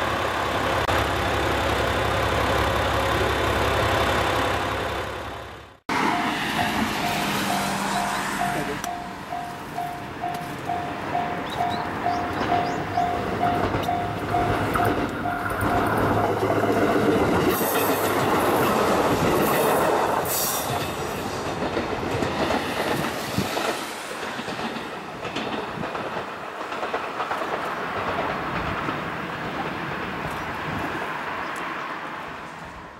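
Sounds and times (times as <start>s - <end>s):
train wheels clattering over rail joints: 11.5s - 30.4s.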